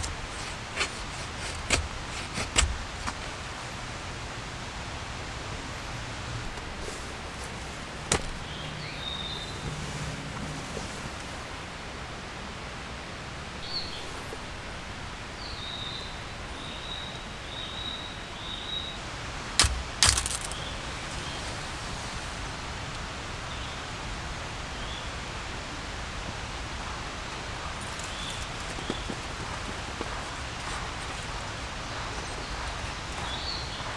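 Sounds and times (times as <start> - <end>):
sharp knocks: 19.6 - 20.7.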